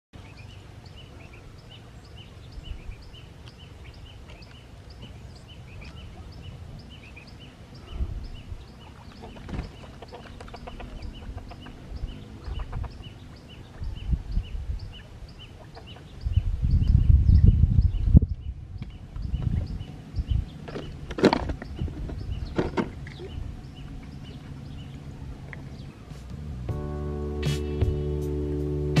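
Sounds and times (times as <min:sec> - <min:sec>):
bird chirping: 0:00.2 - 0:26.2
wind rumble: 0:00.7 - 0:26.8.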